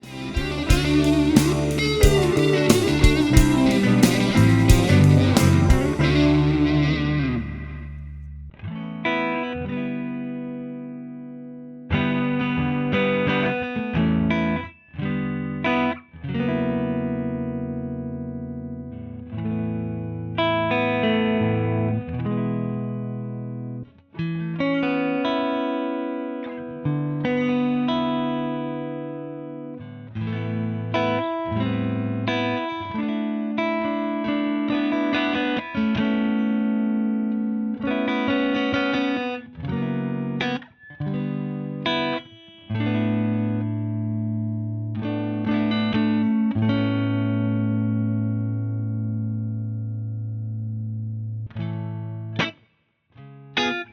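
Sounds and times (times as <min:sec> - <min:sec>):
clean electric guitar chords: 0:00.0 - 0:52.5.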